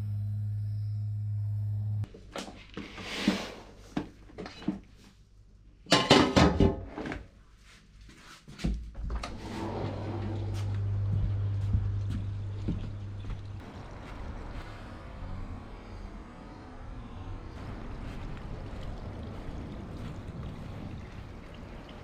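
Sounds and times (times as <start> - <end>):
steady low hum: 0.0 - 2.1, 9.1 - 21.2.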